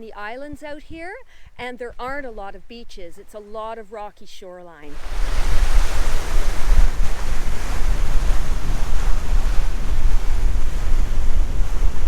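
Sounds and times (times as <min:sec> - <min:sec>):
wind gusting on microphone: 0:00.0 - 0:03.6, 0:04.8 - 0:12.0
lake waves: 0:04.8 - 0:12.0.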